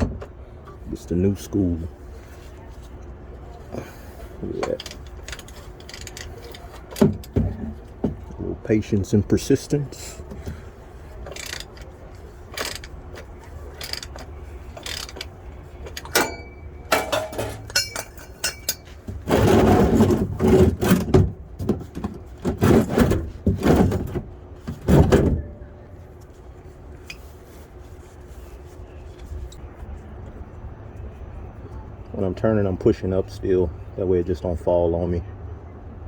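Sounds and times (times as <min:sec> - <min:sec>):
clicks and knocks of hand tools: 0:11.2 - 0:24.2.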